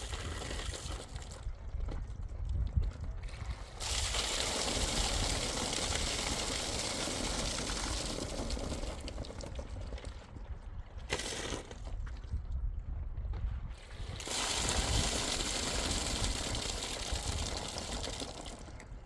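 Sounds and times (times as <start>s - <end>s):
water hissing: 14.0s - 18.6s.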